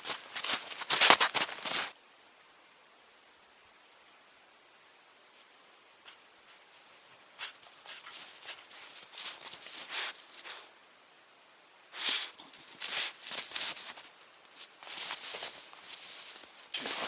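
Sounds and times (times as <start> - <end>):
footsteps in snow: 0.0 - 2.0, 5.4 - 10.7, 12.0 - 17.0.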